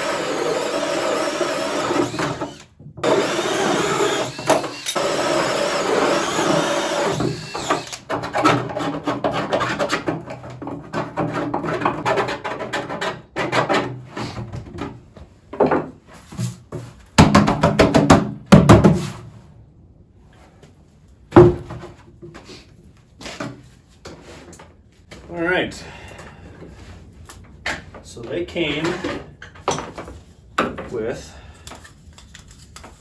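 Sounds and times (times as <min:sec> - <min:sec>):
power drill cutting with hole saw: 0:00.0 - 0:08.1
scraping and rasping: 0:01.8 - 0:14.5.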